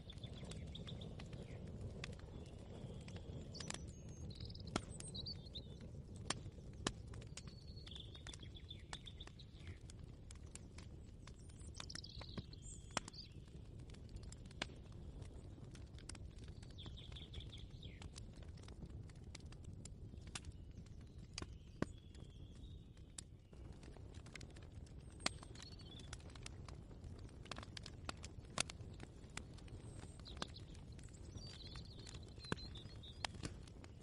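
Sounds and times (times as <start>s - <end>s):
birds chirping: 0.0s - 10.6s, 11.2s - 13.5s, 29.5s - 33.9s.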